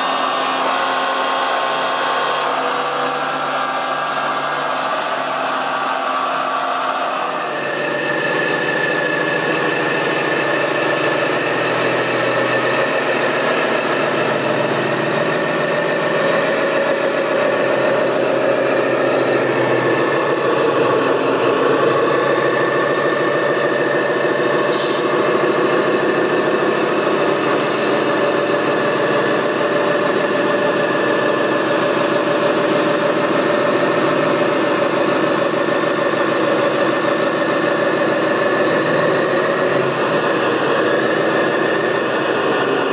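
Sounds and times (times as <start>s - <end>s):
model machine engine drone: 0.0s - 42.9s
motor whine: 0.0s - 42.9s
short hisses: 24.7s - 25.1s.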